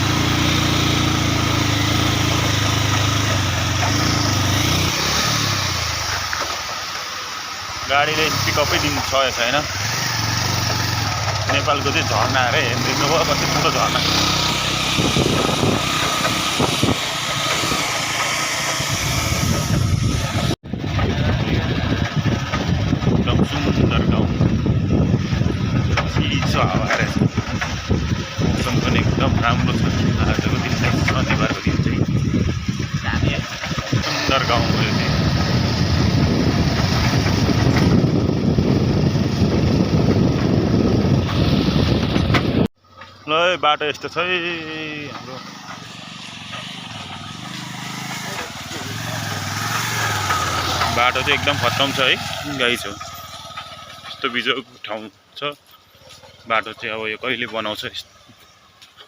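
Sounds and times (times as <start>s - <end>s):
low rumble of dirt road: 0.0s - 59.0s
vehicle engine running: 0.0s - 59.0s
wind buffeting microphone: 14.0s - 18.0s, 18.7s - 42.7s.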